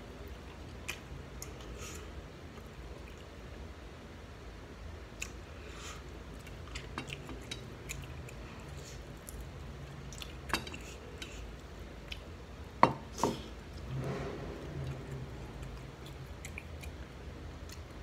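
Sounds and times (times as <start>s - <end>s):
person chewing food: 0.2s - 3.3s, 6.3s - 12.4s, 14.8s - 18.0s.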